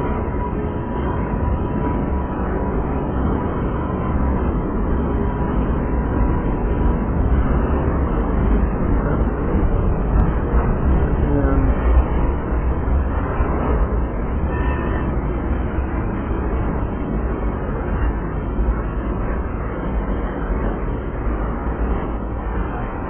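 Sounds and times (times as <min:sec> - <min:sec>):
freight train wheels rumbling: 0:04.0 - 0:19.8.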